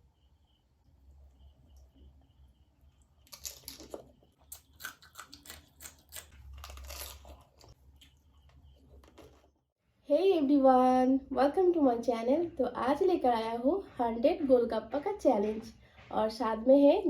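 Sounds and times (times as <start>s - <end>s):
crisp shells crunching when chewed: 3.2s - 9.4s.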